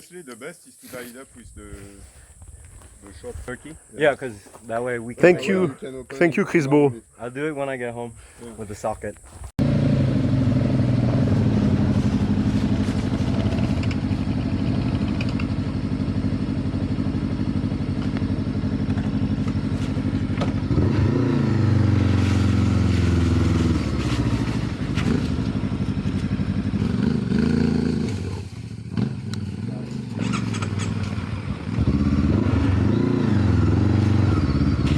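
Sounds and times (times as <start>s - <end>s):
motorcycle engine revving: 9.3s - 34.9s.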